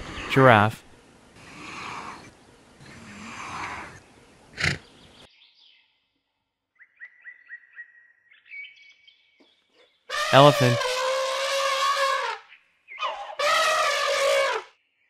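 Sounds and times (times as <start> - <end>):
short sharp burst: 10.1 - 12.2.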